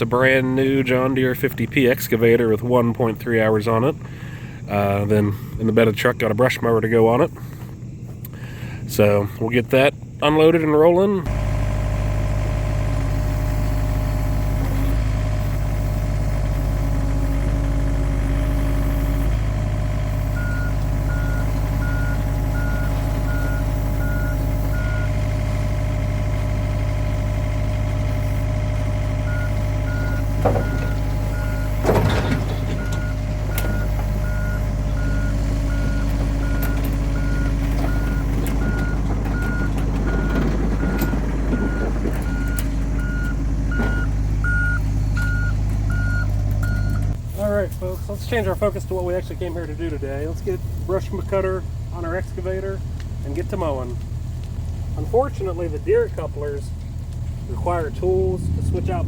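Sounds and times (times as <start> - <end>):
excavator diesel engine running: 0.0 - 5.9, 7.1 - 59.0
travel alarm beeping: 20.2 - 25.2, 29.2 - 47.2
short clunks: 27.4 - 47.2.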